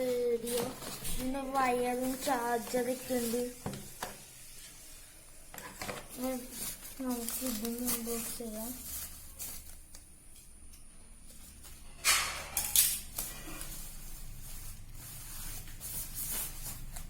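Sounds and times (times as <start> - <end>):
packaging rustling and crinkling: 0.0 - 4.0, 5.6 - 10.5, 12.7 - 17.0.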